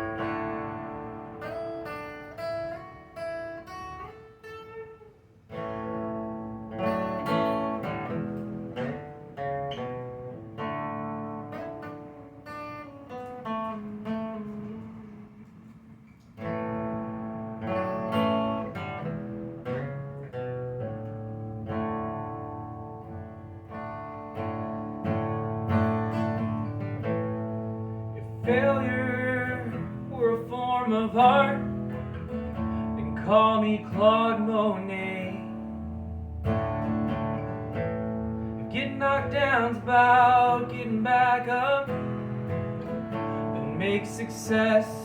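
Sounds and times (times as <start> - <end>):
acoustic guitar playing: 0.0 - 45.0.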